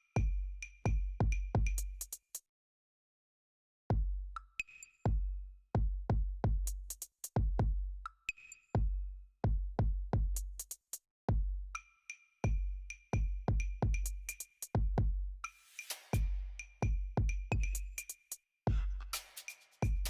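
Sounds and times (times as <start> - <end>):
electronic music with drum machine: 18.7 - 20.0.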